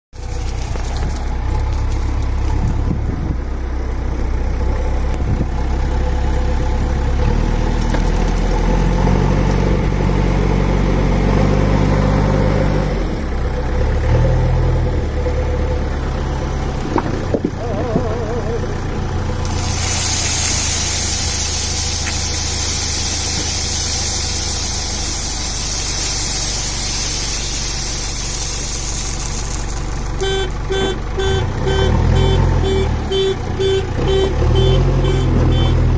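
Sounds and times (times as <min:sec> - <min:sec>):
drilling rig engine under load: 0:05.3 - 0:35.9
loud steady hiss: 0:19.2 - 0:30.4.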